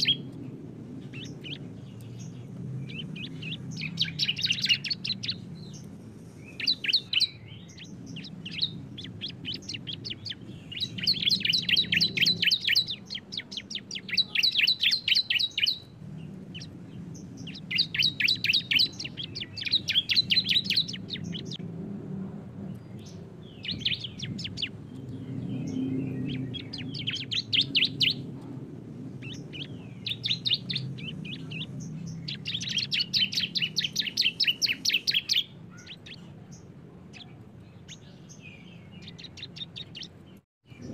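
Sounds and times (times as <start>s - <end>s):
bird song rapid trills: 0.0s - 21.6s, 22.6s - 40.9s.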